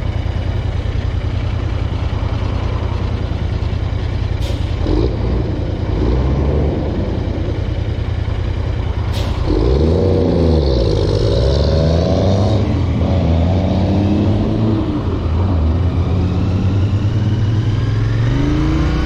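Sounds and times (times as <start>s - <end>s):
motorcycle engine rumbling: 0.0s - 11.6s.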